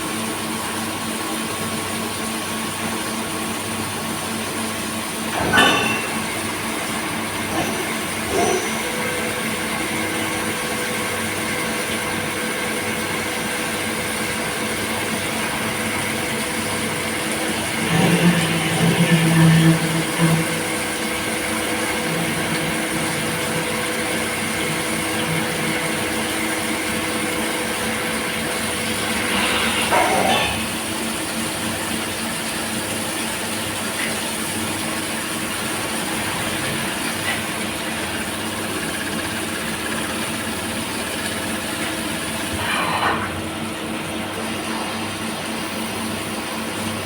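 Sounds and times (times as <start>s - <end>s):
cnc machine humming: 5.3s - 30.9s.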